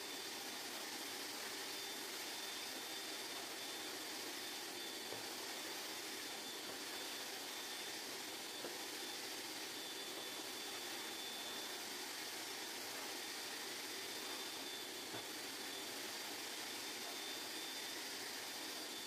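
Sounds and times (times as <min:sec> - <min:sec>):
steady hiss: 0:00.0 - 0:19.0
thin high whine: 0:00.0 - 0:19.0.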